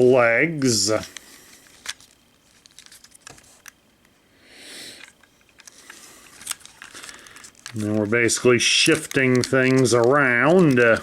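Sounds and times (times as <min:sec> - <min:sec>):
plastic toy clicks: 0:08.6 - 0:11.0.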